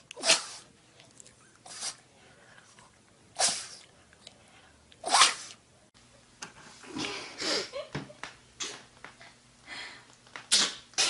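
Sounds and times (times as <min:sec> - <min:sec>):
dog sneezing: 0:00.2 - 0:00.7, 0:01.6 - 0:02.0, 0:03.4 - 0:03.8, 0:05.0 - 0:05.6, 0:10.5 - 0:11.0.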